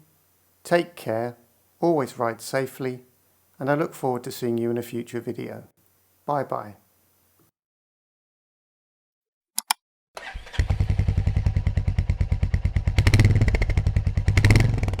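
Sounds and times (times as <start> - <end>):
short clicks: 9.6 - 9.8
motorcycle engine starting and idling: 10.2 - 15.0.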